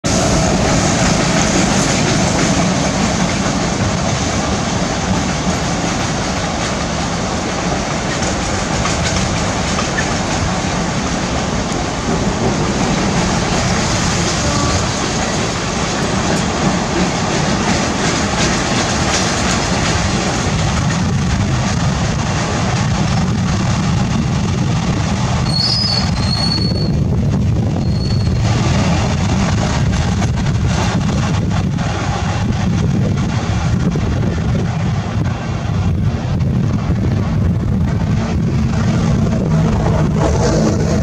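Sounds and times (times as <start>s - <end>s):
train wheels rushing on rails: 0.0s - 41.0s
wheels clicking over rail joints: 0.6s - 26.6s.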